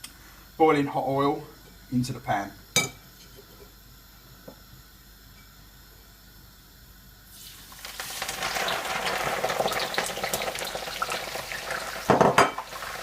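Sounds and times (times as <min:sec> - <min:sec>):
greens sizzling in hot oil: 0:07.2 - 0:13.0.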